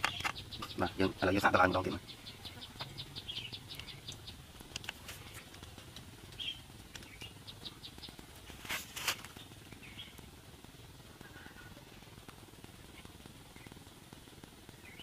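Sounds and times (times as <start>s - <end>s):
faint bird calls: 0.0s - 4.4s.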